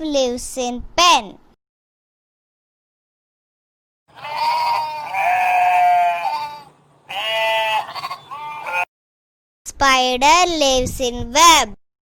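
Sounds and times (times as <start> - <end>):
sheep bleating: 4.1 - 8.9.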